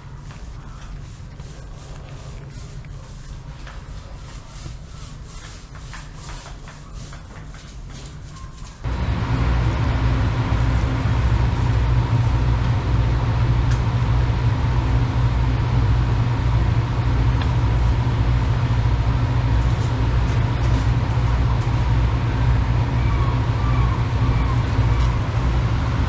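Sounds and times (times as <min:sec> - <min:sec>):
motor humming: 0:08.8 - 0:26.0.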